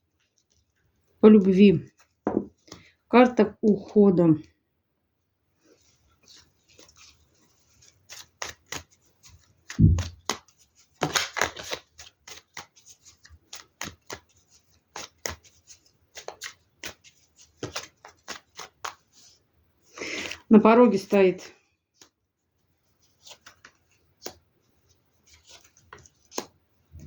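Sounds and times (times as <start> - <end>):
cards shuffling flicks and taps: 5.8 - 19.4, 22.0 - 22.2, 23.0 - 26.6
heavy thump: 9.8 - 10.2.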